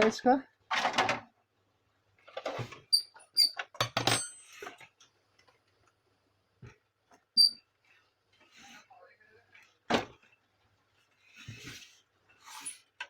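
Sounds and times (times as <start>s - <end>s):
plastic parts clicking and knocking: 3.6s - 5.6s.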